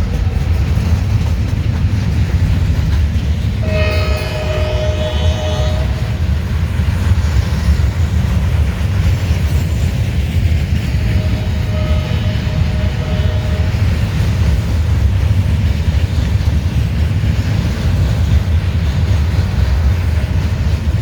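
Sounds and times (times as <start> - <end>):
freight train rumbling past: 0.0 - 21.0
train horn chord: 3.6 - 6.3, 11.2 - 14.0.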